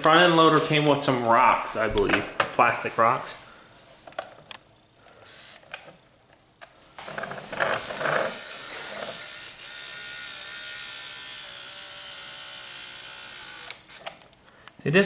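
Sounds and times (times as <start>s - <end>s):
plastic knocks and rattling: 1.8s - 2.6s
small electric motor whining: 7.4s - 14.1s.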